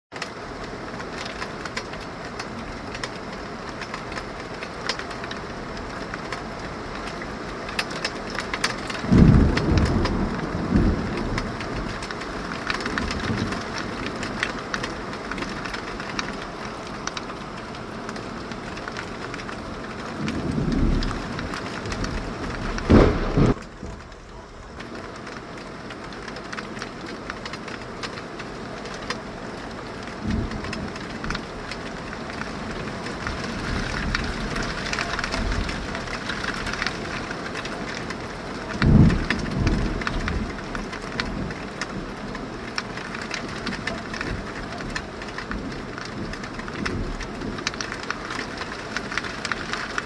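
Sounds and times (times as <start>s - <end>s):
heavy rain falling: 0.2s - 50.0s
thunder rumbling: 8.2s - 16.4s, 19.0s - 25.7s.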